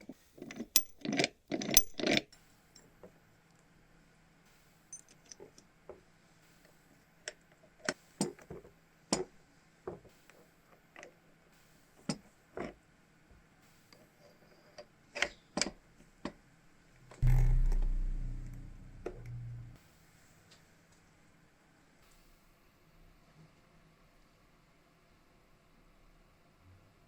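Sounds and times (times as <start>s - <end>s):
hand tools clicking and tapping: 0.4s - 2.2s
loud low hum: 17.2s - 19.8s.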